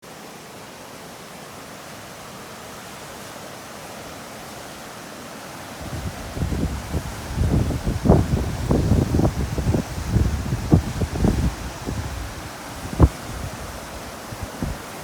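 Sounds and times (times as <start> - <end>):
river rushing: 0.0 - 15.0
wind buffeting microphone: 5.8 - 15.0.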